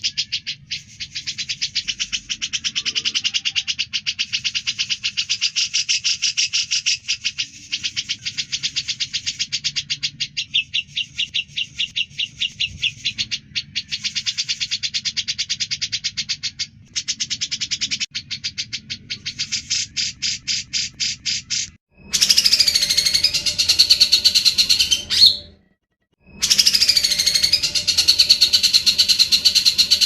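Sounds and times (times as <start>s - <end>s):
bulbul singing sharp chips: 18.7s - 25.6s, 26.2s - 30.0s.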